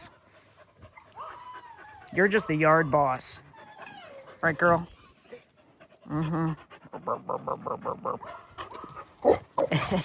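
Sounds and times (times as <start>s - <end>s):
dog panting rapidly: 0.0s - 7.1s.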